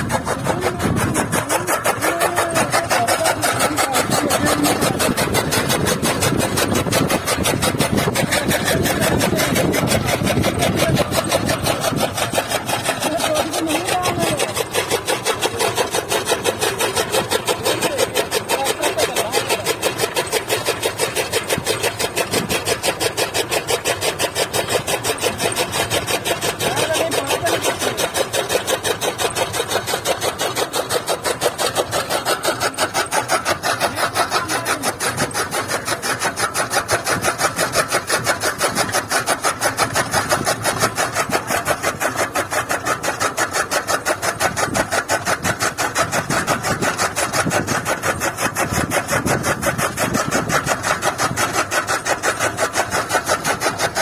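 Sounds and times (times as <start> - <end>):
heavy low rumble: 0.0 - 12.2
chaff cutter running: 0.0 - 54.0
tractor diesel engine: 0.0 - 54.0.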